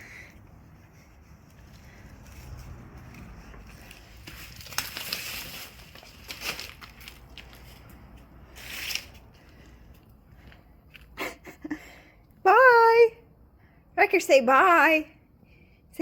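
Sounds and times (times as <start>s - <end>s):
leaf crackling and tearing: 2.2s - 9.2s.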